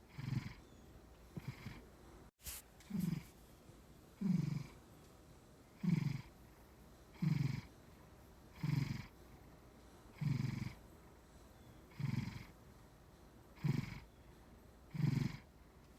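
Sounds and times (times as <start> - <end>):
cat snoring: 0.0 - 0.7, 1.4 - 1.8, 2.9 - 3.3, 4.2 - 4.8, 5.8 - 6.3, 7.1 - 7.7, 8.5 - 9.2, 10.2 - 10.8, 11.9 - 12.6, 13.6 - 14.1, 14.9 - 15.5.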